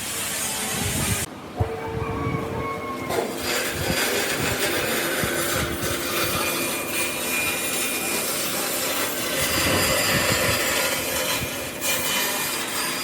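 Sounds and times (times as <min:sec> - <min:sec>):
tool rasping on wood: 0:03.1 - 0:13.0.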